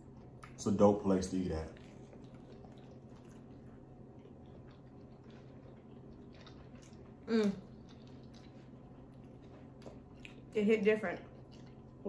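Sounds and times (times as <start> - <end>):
low steady hum: 0.0 - 12.0
person chewing food: 1.6 - 10.5, 11.2 - 12.0.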